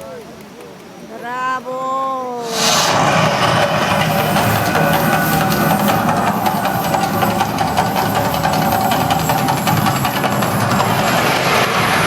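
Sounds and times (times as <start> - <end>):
fire hissing and crackling: 2.3 - 12.0
loud steady rumble: 2.5 - 12.0.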